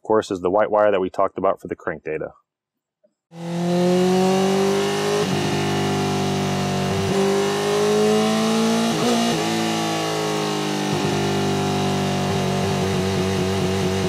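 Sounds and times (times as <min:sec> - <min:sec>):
motorcycle engine running under load: 0:03.4 - 0:09.9, 0:10.8 - 0:14.0.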